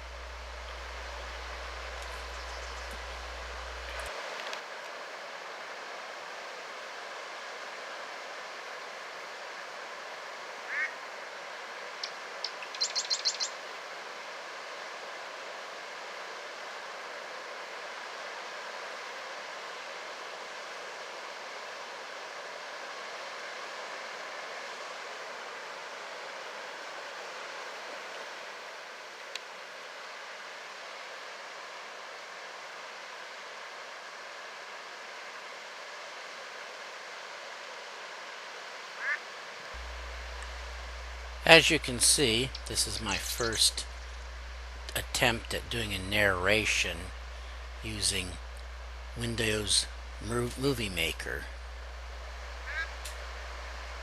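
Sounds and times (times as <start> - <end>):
steady hiss: 0.0 - 54.0
bird calls and high chirps: 2.1 - 3.1, 12.4 - 13.6.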